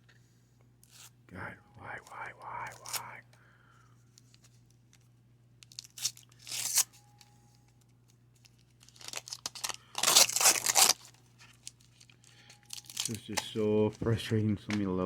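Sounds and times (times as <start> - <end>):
wax pack tearing and crinkling: 5.6 - 6.9, 8.4 - 13.9.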